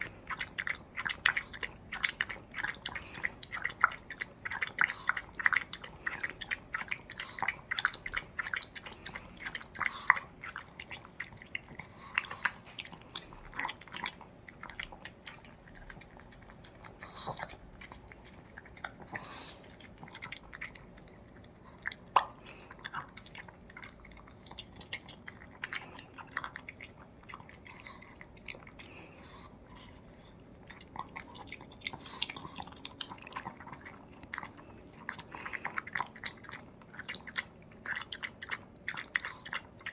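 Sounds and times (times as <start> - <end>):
dog chewing wetly: 0.0 - 39.9.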